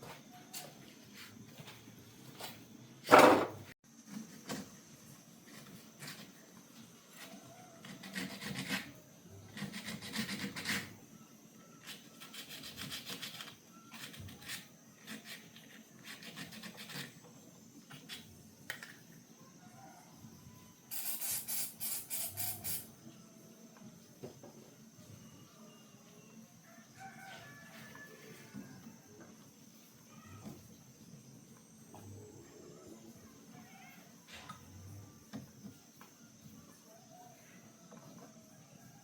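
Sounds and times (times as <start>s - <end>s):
faint high-pitched tone: 23.0s - 29.3s.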